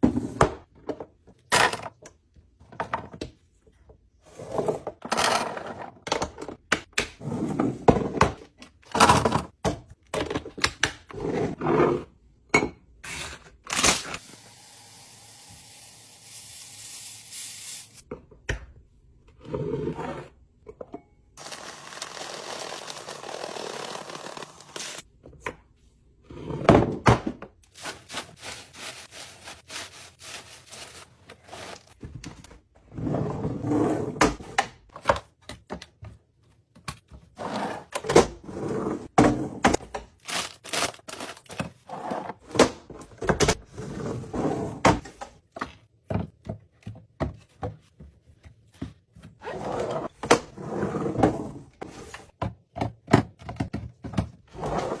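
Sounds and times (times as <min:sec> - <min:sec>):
kitchen items knocking and clicking: 0:07.9 - 0:11.1, 0:44.8 - 0:49.4, 0:52.3 - 0:55.0.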